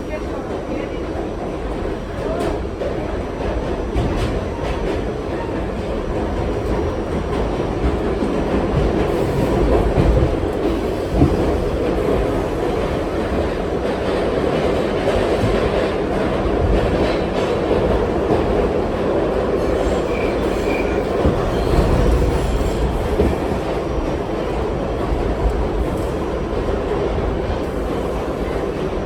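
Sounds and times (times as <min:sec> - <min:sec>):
subway train wheels rumbling: 0:00.0 - 0:29.0.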